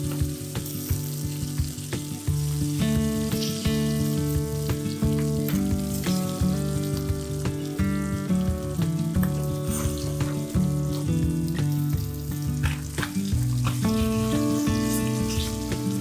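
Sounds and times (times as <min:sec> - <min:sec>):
fish sizzling in oil: 0:00.0 - 0:16.0
instrumental background music: 0:00.0 - 0:16.0
wooden spatula clicks and scrapes: 0:12.6 - 0:15.6.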